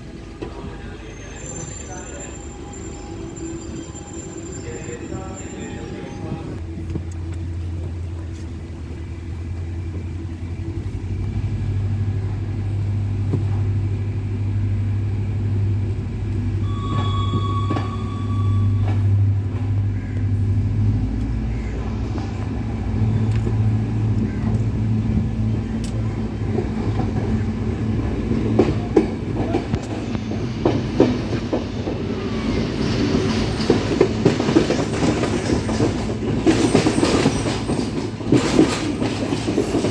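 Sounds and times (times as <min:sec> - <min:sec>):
diesel train engine drone: 0:00.0 - 0:39.9
short high tone: 0:16.6 - 0:19.4.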